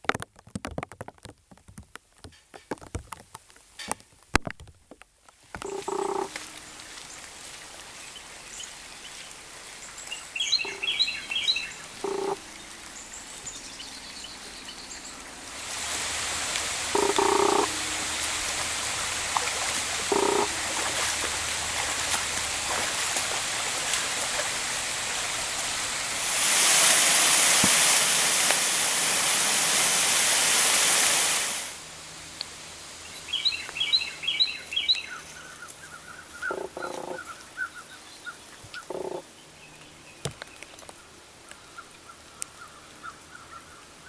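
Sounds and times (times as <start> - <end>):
rush of falling water: 5.4 - 44.0
birds chirping: 7.9 - 15.5, 16.4 - 24.5, 33.0 - 43.9.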